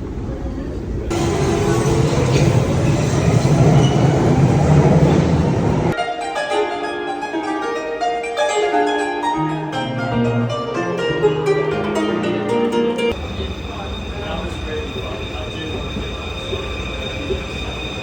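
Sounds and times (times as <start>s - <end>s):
train rumbling: 0.0s - 6.0s, 13.1s - 18.0s
plucked string instrument melody: 5.9s - 13.2s.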